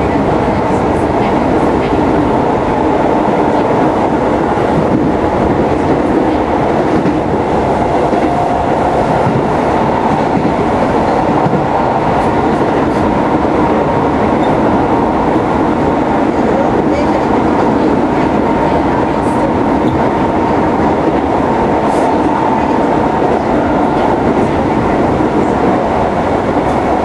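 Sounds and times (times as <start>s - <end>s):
rail joint clicks: 0.0s - 27.0s
train wheels rumbling on rail: 0.0s - 27.0s.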